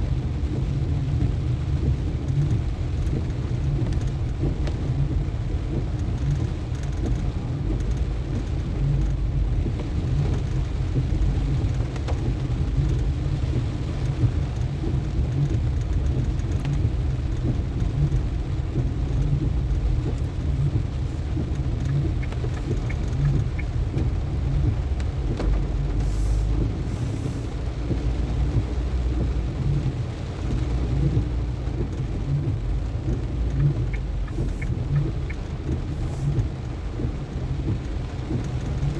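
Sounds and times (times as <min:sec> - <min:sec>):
rain and wet tyres hiss: 0:00.0 - 0:38.9
road and engine rumble: 0:00.0 - 0:38.9.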